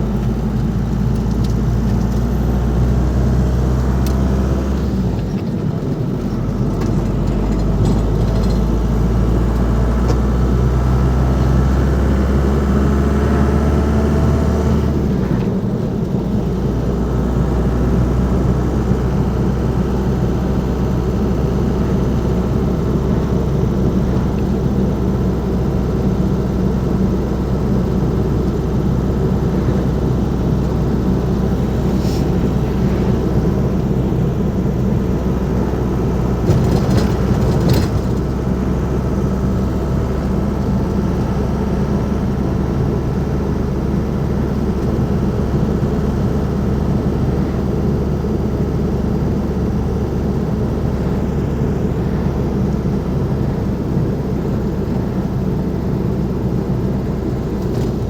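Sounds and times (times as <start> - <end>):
diesel van engine running: 0.0 - 58.0
road noise: 0.0 - 58.0.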